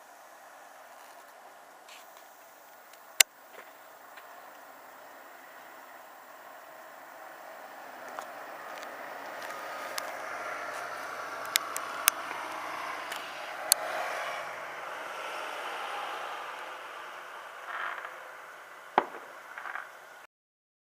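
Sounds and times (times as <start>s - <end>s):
vehicle passing: 0.0s - 20.2s
sharp cracks: 8.0s - 20.2s.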